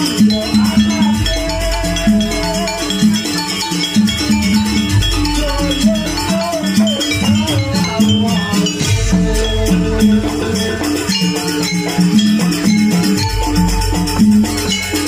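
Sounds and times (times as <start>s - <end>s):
drums: 0.0s - 15.0s
gamelan pitched metal notes: 0.0s - 15.0s.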